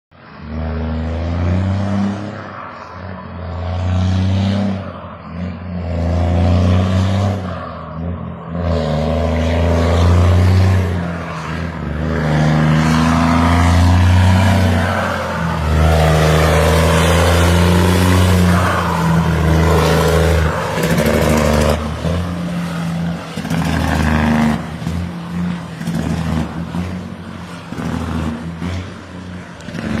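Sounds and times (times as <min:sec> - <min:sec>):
loud diesel truck exhaust: 0:00.4 - 0:30.0.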